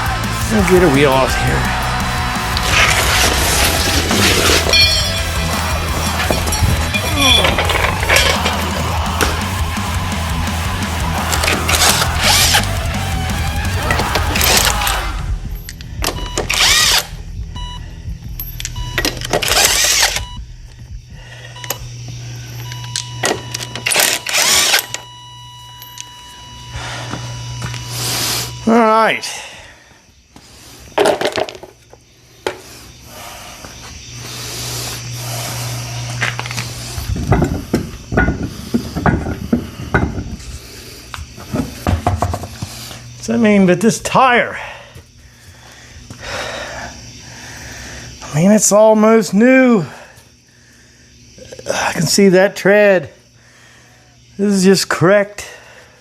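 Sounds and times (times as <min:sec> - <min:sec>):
impact wrench bursts: 0:00.5 - 0:29.7.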